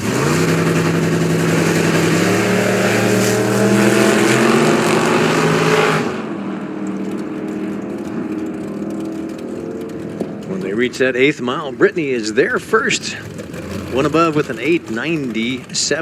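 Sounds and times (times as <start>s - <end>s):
drag race cars accelerating: 0.0s - 16.0s.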